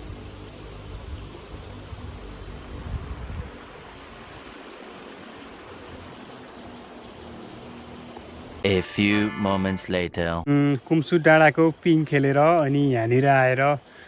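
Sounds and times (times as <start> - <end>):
steady outdoor rushing noise: 0.0 - 8.8.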